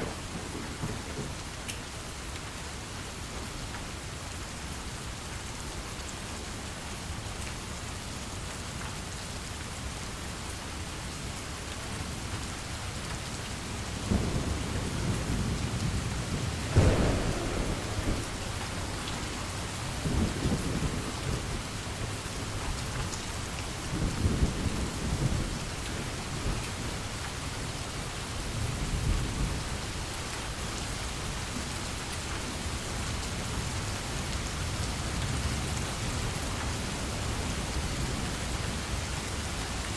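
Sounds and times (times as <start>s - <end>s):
steady rain: 0.0s - 39.9s
rolling thunder: 14.0s - 23.2s
sharp thunder clap: 14.1s - 22.0s.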